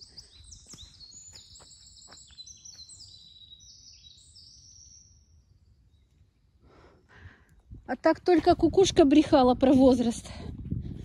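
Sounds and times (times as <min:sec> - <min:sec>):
songbirds singing: 0:00.0 - 0:06.9.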